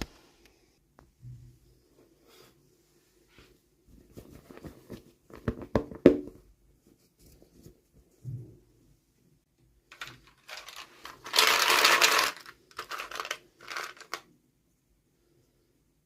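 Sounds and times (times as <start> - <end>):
packaging rustling and crinkling: 9.9 - 14.2.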